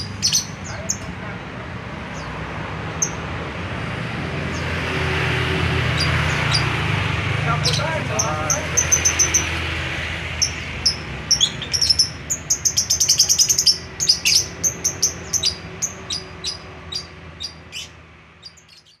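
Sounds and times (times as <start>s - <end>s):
lovebirds chirping: 0.0s - 1.4s, 5.9s - 19.0s.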